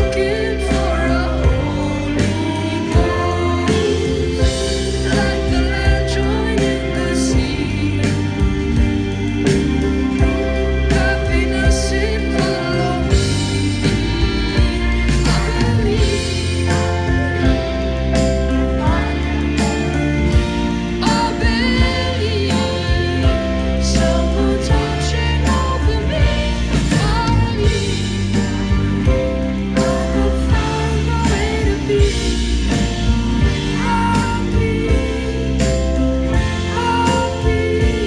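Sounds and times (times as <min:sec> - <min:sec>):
live band playing: 0:00.0 - 0:38.0
person singing: 0:00.0 - 0:38.0.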